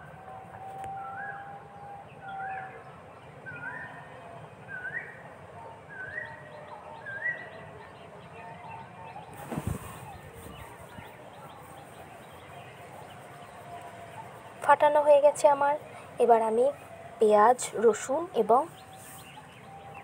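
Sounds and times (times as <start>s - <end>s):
faint whistle-like tone: 0.0s - 5.2s.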